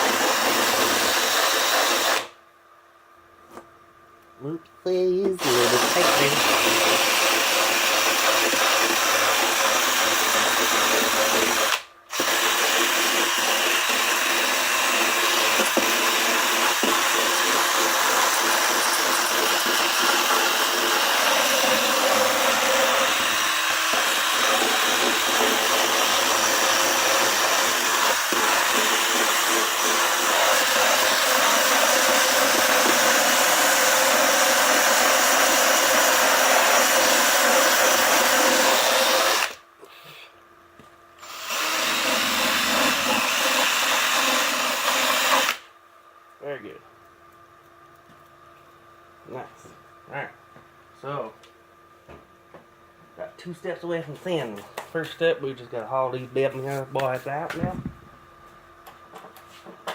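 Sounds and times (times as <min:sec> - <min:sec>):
handheld power tool cutting foam: 0:00.0 - 0:02.4, 0:05.3 - 0:39.6, 0:41.2 - 0:45.7.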